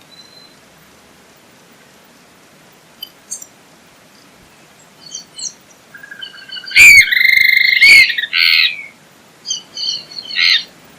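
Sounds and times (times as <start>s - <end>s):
bird calling: 5.0s - 10.8s.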